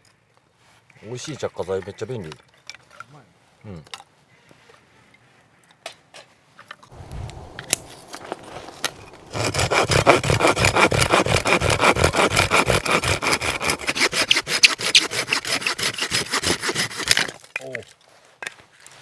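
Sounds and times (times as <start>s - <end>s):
rustling: 6.9s - 17.4s
hand saw cutting wood: 7.0s - 17.5s.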